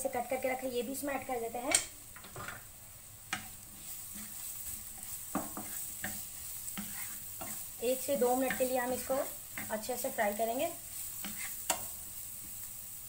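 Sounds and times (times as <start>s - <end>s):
garlic sizzling in oil: 0.0s - 13.0s
utensil knocking against pan: 5.3s - 5.8s.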